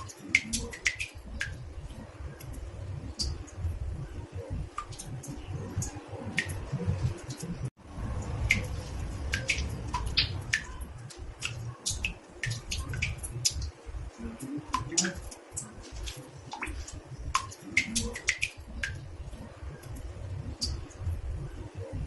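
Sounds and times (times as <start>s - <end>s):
water drops plinking into bathtub: 0.0s - 1.8s, 8.2s - 21.1s.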